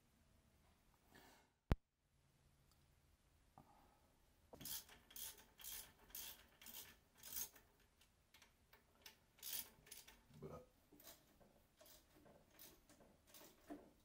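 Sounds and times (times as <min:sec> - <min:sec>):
faint rhythmic scraping: 0:09.0 - 0:14.0.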